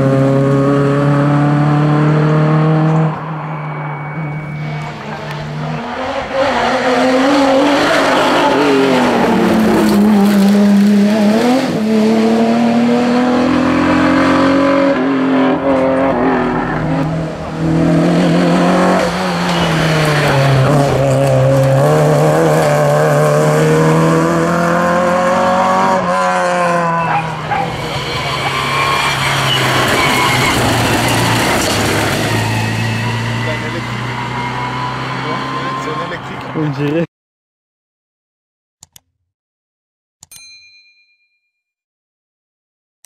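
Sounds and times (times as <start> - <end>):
rally car engine revving: 0.0 - 37.0
tyres squealing on tarmac: 19.0 - 21.2, 26.9 - 36.8.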